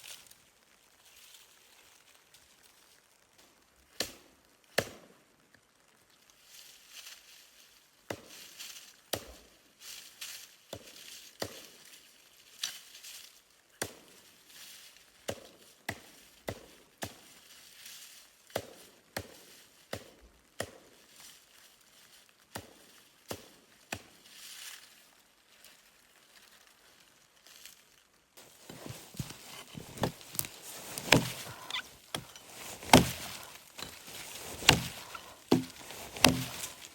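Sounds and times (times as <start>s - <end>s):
chopping strikes: 28.4s - 36.9s.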